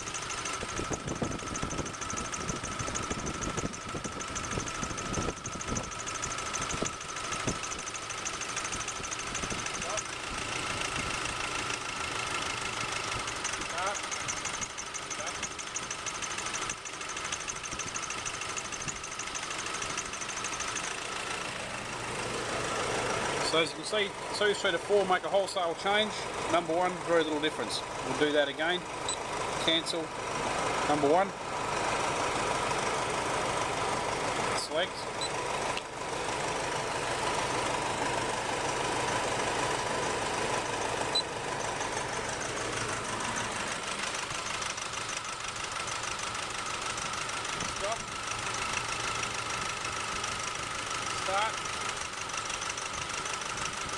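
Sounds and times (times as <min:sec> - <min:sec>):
rapid ticking clatter: 0:00.0 - 0:21.5, 0:40.5 - 0:53.9
diesel engine idling: 0:00.0 - 0:53.9.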